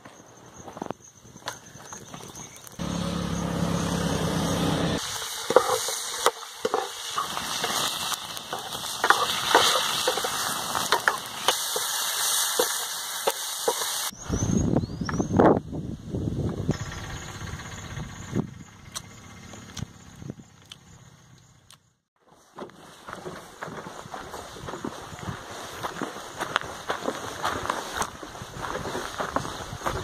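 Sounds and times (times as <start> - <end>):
fire crackling: 2.6 - 14.1
low hum: 2.8 - 5.0
chicken sizzling in hot oil: 5.0 - 14.1.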